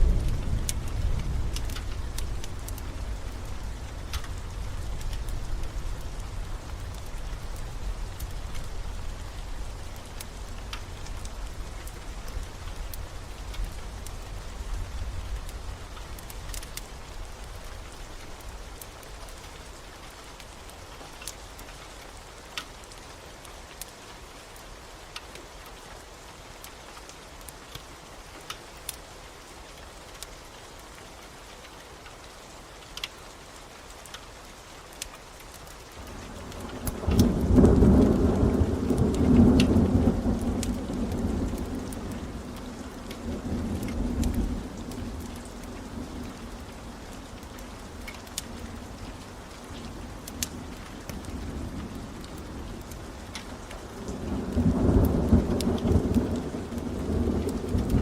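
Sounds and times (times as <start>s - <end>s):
thunder rumbling: 0.0s - 16.5s, 36.1s - 49.0s, 49.9s - 58.0s
log fire crackling: 0.0s - 24.0s, 34.8s - 58.0s
steady rain: 0.0s - 58.0s.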